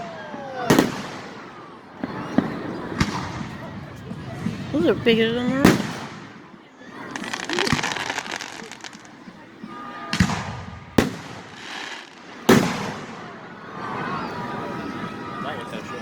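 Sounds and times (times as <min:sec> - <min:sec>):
fireworks booms: 0:00.0 - 0:09.3, 0:10.1 - 0:13.4
fireworks crackling: 0:00.0 - 0:13.4.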